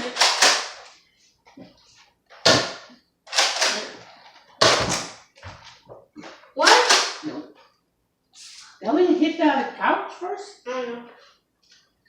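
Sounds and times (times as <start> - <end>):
toy blaster firing: 0.0 - 0.8, 6.6 - 7.2.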